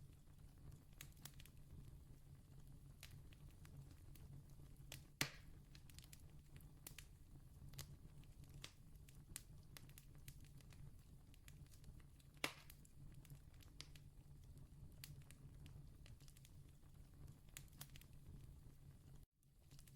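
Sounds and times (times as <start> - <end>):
campfire crackling: 2.9 - 18.5
fire pops: 3.0 - 7.1, 7.7 - 14.1.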